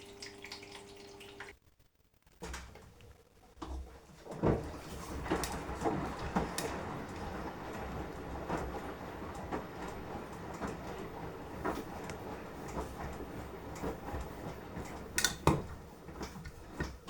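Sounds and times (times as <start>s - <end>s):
laundry thumping and knocking: 3.7s - 17.0s
washing machine drum rumbling: 4.2s - 17.0s.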